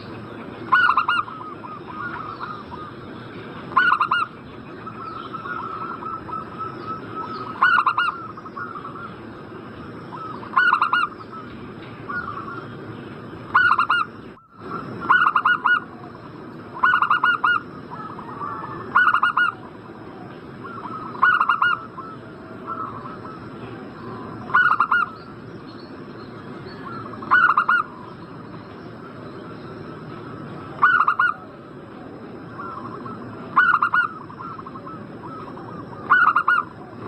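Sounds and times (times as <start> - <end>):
faint high whine: 0.0 - 37.0
dove cooing: 0.7 - 2.9, 3.7 - 4.3, 4.9 - 9.1, 10.1 - 11.5, 12.1 - 12.7, 13.5 - 25.2, 26.7 - 28.0, 29.8 - 37.0.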